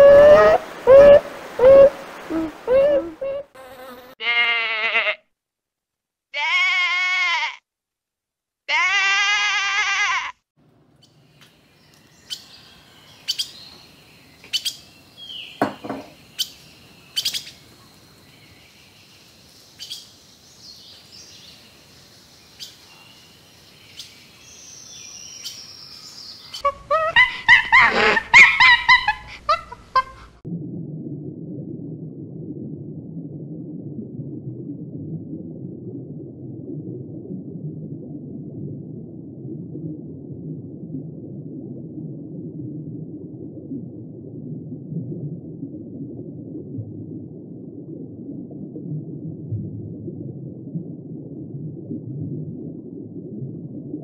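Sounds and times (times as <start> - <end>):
small birds chirping: 11.0 - 27.0
steady low rumble: 30.4 - 54.0.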